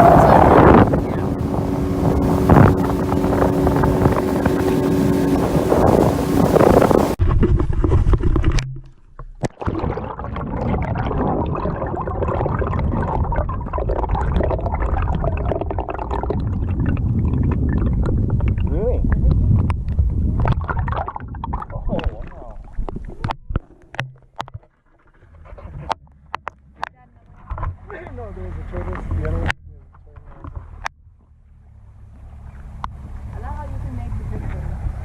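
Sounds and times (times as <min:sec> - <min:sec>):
water rushing: 0:00.0 - 0:07.2, 0:09.4 - 0:19.6, 0:20.4 - 0:24.5
wind on microphone: 0:00.0 - 0:08.6, 0:09.8 - 0:24.0
motorboat engine hum: 0:00.0 - 0:35.0.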